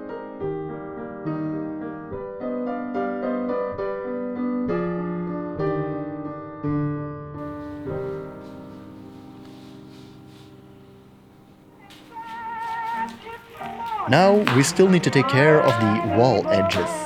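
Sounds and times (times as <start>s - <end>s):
gentle piano melody: 6.5s - 17.0s.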